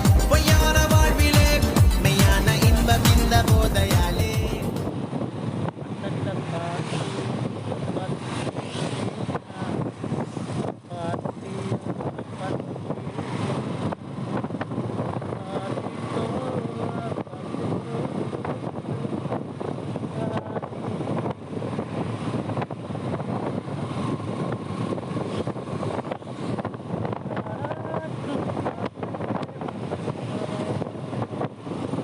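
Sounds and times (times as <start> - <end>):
motorbike engine roaring: 0.0 - 32.0
wind buffeting microphone: 3.4 - 32.0.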